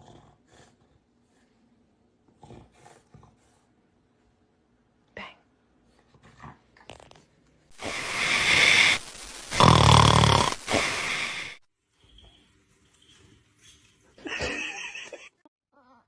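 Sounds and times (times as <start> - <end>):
dog snoring loudly: 7.7 - 11.6.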